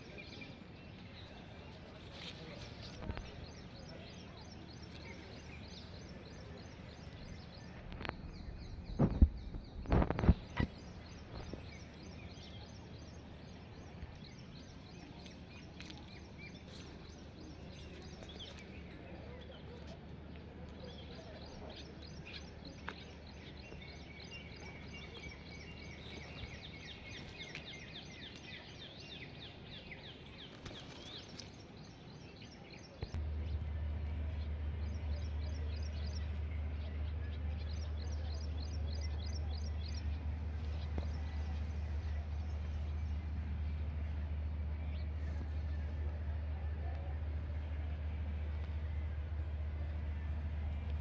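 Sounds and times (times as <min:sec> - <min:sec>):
birds chirping: 0:00.0 - 0:20.0, 0:20.7 - 0:51.0
low rumble: 0:05.1 - 0:12.2, 0:33.0 - 0:51.0.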